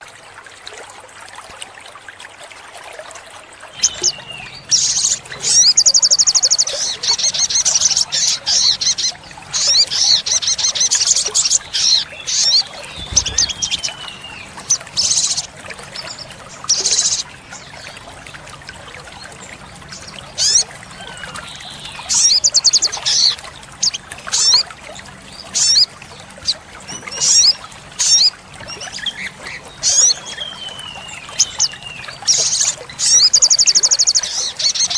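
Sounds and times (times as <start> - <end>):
sunbird trilling and chirping: 3.8 - 17.2.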